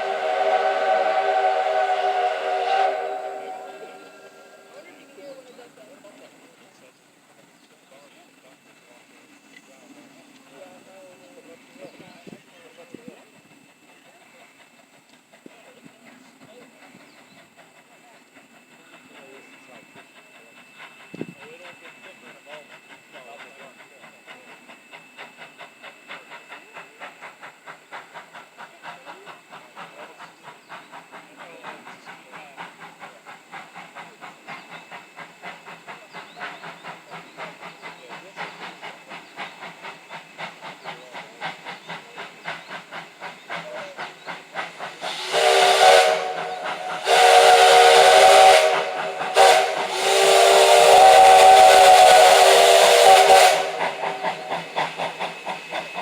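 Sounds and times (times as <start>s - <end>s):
steam whistle blasts: 0.0s - 5.0s, 44.8s - 55.7s
steam locomotive rhythmic chugging: 0.0s - 56.0s.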